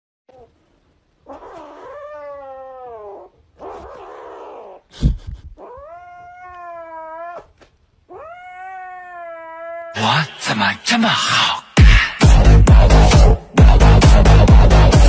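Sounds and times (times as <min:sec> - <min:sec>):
cat yowling: 0:01.2 - 0:04.9, 0:05.6 - 0:10.0
cat hissing: 0:01.3 - 0:07.5.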